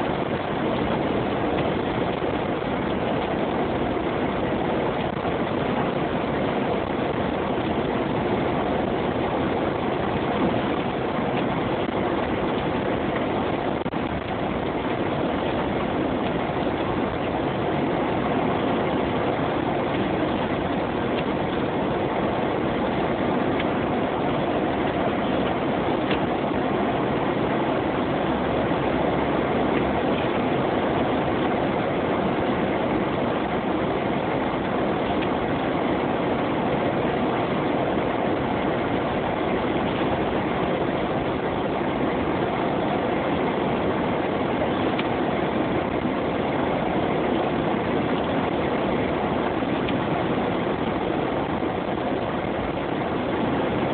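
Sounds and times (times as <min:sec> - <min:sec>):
car engine: 0:00.0 - 0:53.9
road noise: 0:00.0 - 0:53.9.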